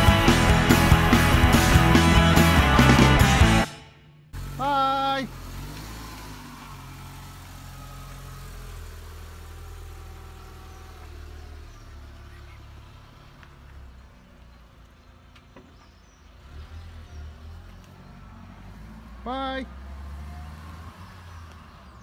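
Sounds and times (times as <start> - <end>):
car engine running: 0.0 - 16.4.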